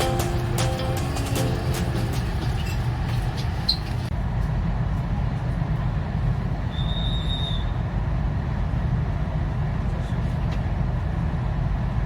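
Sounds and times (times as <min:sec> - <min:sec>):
high-pitched tone: 0:00.0 - 0:02.4
electric train rumbling on rails: 0:00.0 - 0:12.0.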